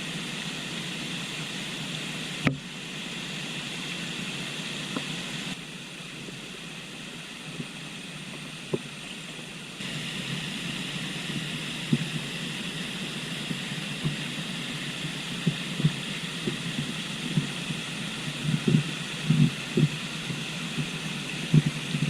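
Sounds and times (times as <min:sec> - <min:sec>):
river rushing: 0:00.0 - 0:22.0
soft low thumps: 0:21.5 - 0:22.0.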